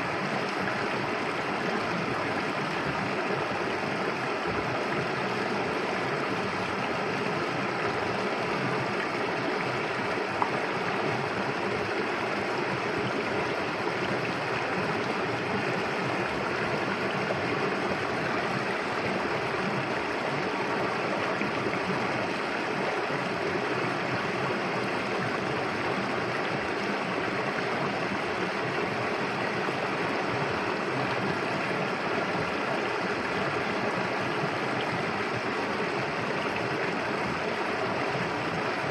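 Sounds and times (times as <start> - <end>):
river flowing over stones: 0.0 - 38.9.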